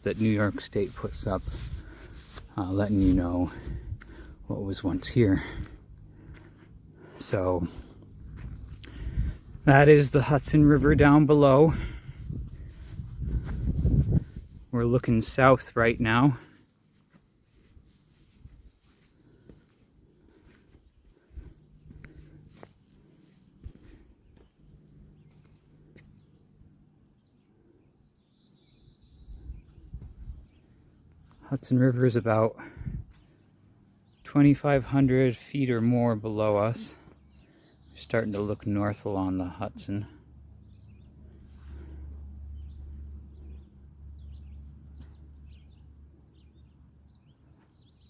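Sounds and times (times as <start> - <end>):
small birds chirping and trilling: 0.0 - 16.7, 17.4 - 48.0
low rumble: 5.4 - 14.8
bird chirps: 40.5 - 48.0.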